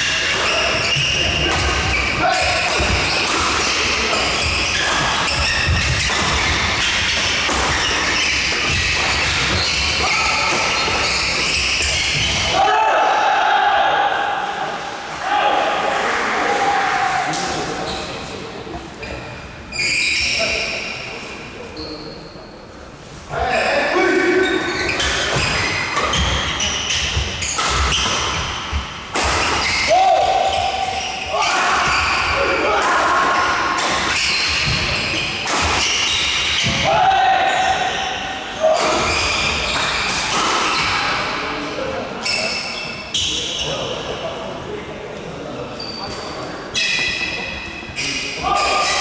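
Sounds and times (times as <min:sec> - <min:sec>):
rackets hitting shuttlecock: 0:00.0 - 0:12.5, 0:24.6 - 0:36.9, 0:38.7 - 0:41.2
shoe squeaks on court floor: 0:00.0 - 0:12.5, 0:19.0 - 0:22.6, 0:23.5 - 0:28.7, 0:34.1 - 0:36.8, 0:37.5 - 0:41.2, 0:42.2 - 0:44.0, 0:45.7 - 0:49.0.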